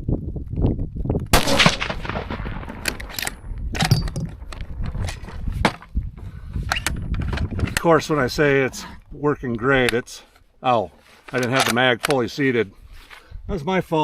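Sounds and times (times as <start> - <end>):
wind on microphone: 0.0 - 9.5
rifle shot: 1.3 - 4.1
rifle handling clicks and knocks: 2.7 - 7.9, 11.2 - 12.3.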